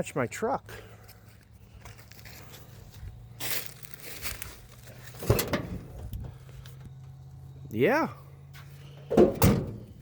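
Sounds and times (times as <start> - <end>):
rustling and crinkling handling noise: 1.2 - 6.9.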